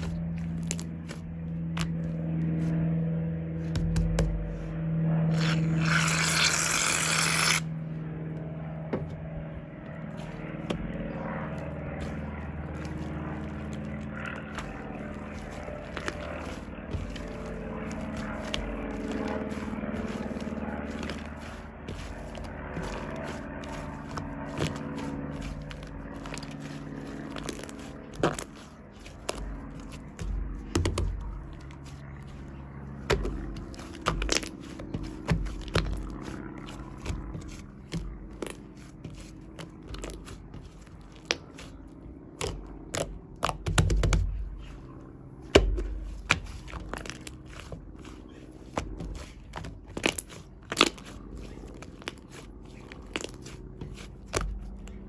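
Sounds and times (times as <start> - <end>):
soft thumps: 8.4 - 25.4.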